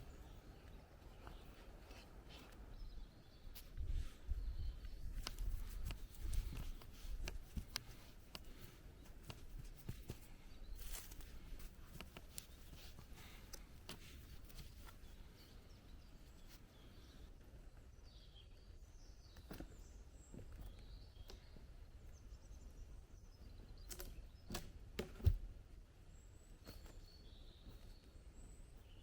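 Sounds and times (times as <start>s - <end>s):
small clicks and snaps: 5.1s - 12.6s, 23.8s - 24.7s.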